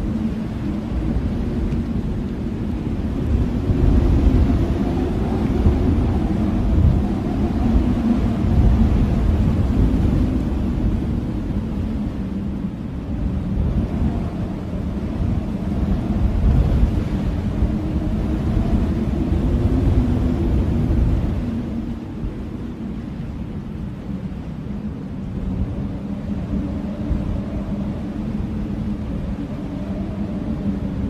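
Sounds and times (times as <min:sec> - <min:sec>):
blizzard wind blowing: 0:00.0 - 0:31.0
faint wavering wind howl: 0:00.0 - 0:31.0.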